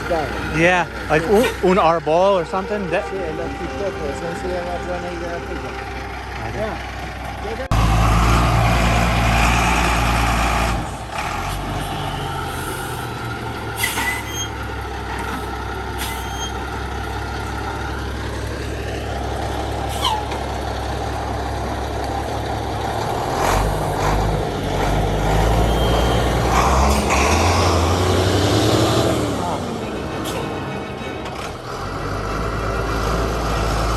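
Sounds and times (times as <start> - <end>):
vehicle engine running: 0.0 - 9.2, 14.5 - 33.9
short high squeaks: 13.8 - 14.6, 15.2 - 16.7, 19.9 - 20.4, 25.4 - 27.1.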